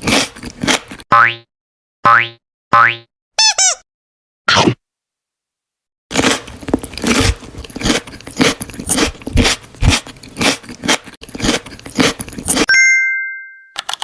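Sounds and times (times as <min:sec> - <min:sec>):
chewing crunchy food: 0:00.0 - 0:01.0, 0:06.1 - 0:12.7.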